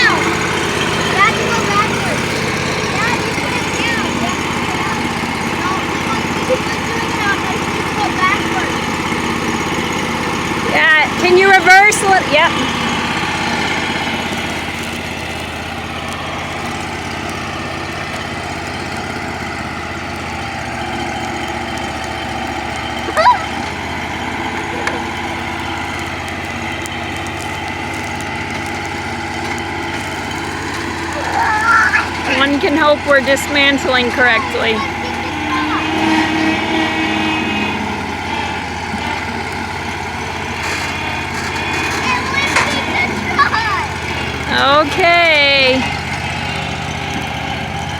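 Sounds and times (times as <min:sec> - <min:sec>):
backhoe engine running: 0:00.0 - 0:47.9.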